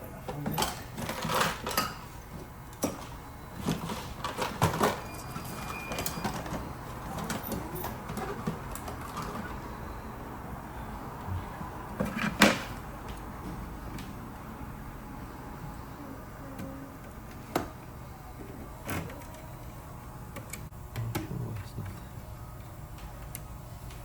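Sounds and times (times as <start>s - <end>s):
tools and parts being handled: 2.7s - 9.6s.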